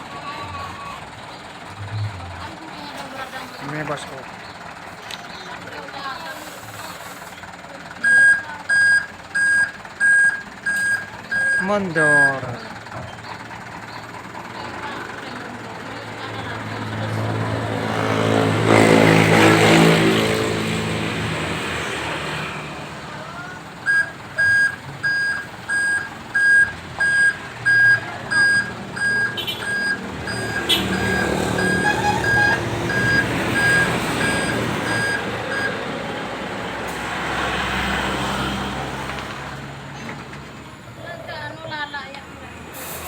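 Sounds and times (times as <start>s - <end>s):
truck engine running: 0.0s - 43.0s
reversing alarm beeping: 8.0s - 14.0s, 23.8s - 35.8s.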